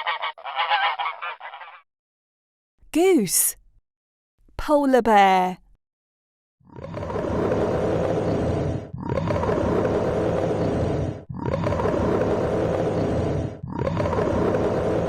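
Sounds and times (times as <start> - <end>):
polar bear growling: 6.7 - 15.0.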